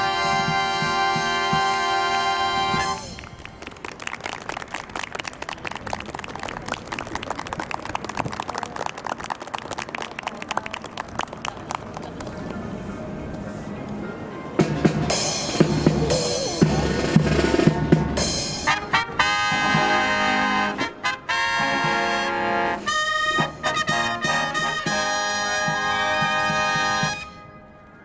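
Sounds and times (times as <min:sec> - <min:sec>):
drums: 0:00.0 - 0:03.4, 0:14.6 - 0:27.3
trumpets and trombones: 0:00.0 - 0:03.8, 0:14.6 - 0:28.0.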